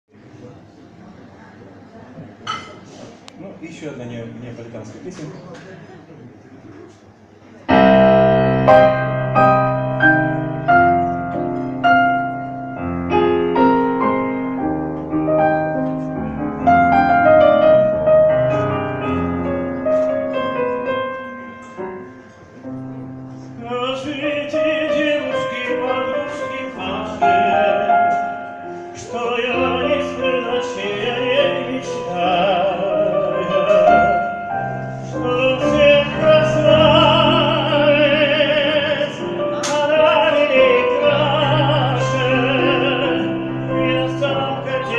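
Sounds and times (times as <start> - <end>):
piano: 7.6 - 44.9
person singing operatically: 35.1 - 44.9.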